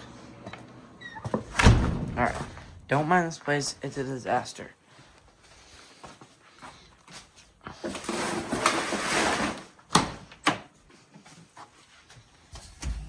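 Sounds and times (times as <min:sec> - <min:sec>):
rustling scrape: 0:07.8 - 0:09.7.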